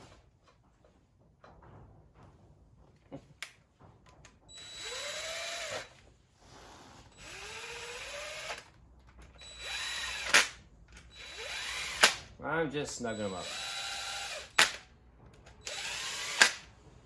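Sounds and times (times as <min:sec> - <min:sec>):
power drill driving bolts: 0:04.5 - 0:06.1, 0:07.1 - 0:12.3, 0:13.1 - 0:16.7.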